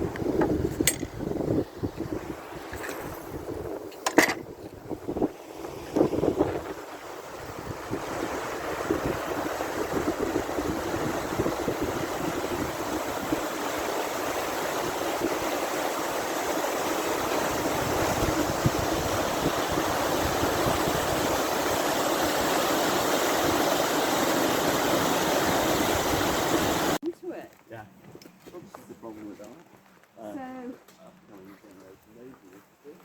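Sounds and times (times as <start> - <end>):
river water rushing: 5.4 - 27.0.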